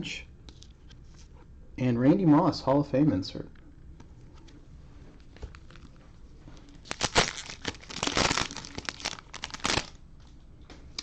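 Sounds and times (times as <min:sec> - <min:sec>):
plastic wrapper crackling: 0:05.4 - 0:06.0, 0:06.6 - 0:10.0.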